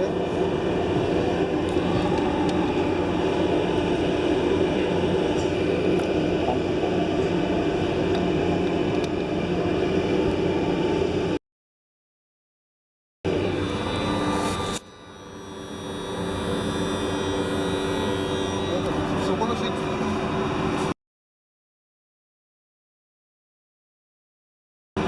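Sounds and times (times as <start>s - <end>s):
machinery rumble with low hum: 0.0s - 11.4s, 13.3s - 21.0s.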